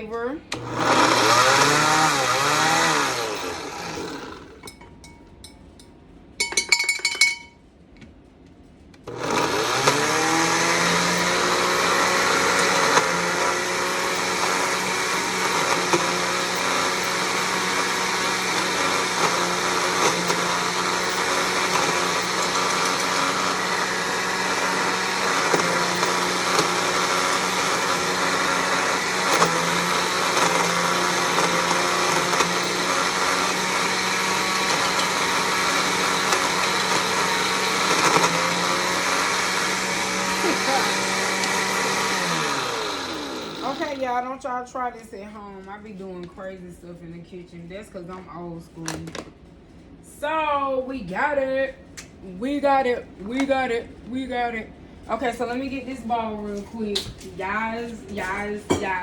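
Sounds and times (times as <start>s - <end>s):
blender motor chopping nuts: 0.5s - 4.7s, 9.0s - 44.2s.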